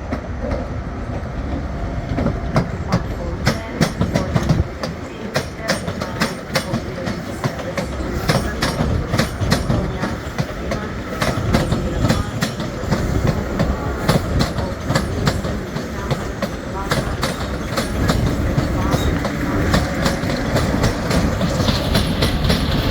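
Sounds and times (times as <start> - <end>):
low train rumble: 0.0 - 22.9
train wheels clicking over rail joints: 0.0 - 22.9.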